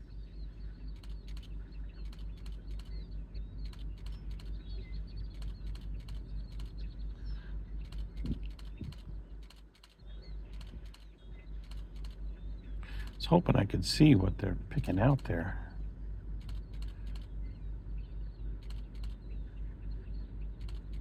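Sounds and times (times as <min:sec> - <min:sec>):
faint high bird chirps: 0:00.0 - 0:13.3, 0:15.2 - 0:21.0
pulsing low rumble: 0:00.0 - 0:21.0
sharp clicks: 0:00.9 - 0:06.9, 0:07.8 - 0:13.3, 0:16.4 - 0:17.4, 0:18.6 - 0:19.3, 0:20.6 - 0:21.0.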